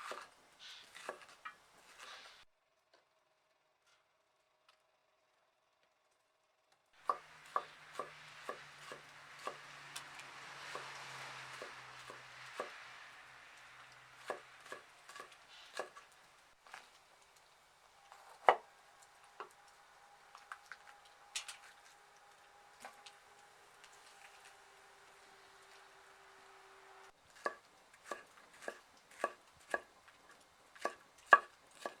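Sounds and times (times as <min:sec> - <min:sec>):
knife chopping on cutting board: 0:00.0 - 0:00.3, 0:00.9 - 0:02.2, 0:07.1 - 0:09.6, 0:14.2 - 0:16.0, 0:27.4 - 0:32.0.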